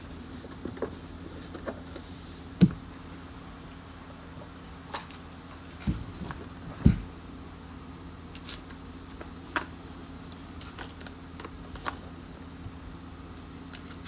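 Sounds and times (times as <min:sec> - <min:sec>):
card box knock: 0:02.6 - 0:02.8.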